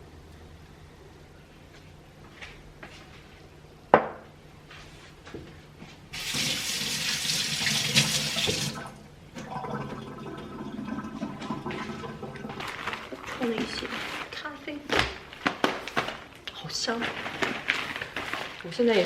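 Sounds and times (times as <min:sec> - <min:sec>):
water running hard: 0:06.2 - 0:12.7
stream of water pouring: 0:06.2 - 0:12.8.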